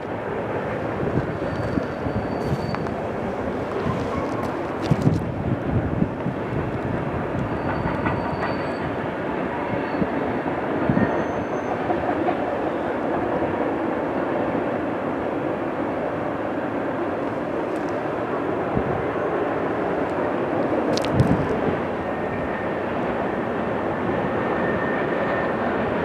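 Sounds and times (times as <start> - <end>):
train wheels rumbling on rail: 0.0 - 26.0
faint high squeals: 1.4 - 3.1, 7.4 - 9.0, 10.9 - 11.8.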